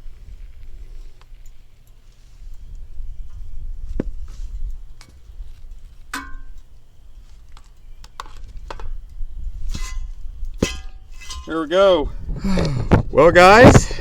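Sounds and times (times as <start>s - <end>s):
steady low rumble of torch: 0.0s - 14.0s
ringing metal clank: 6.2s - 6.6s, 9.7s - 11.7s.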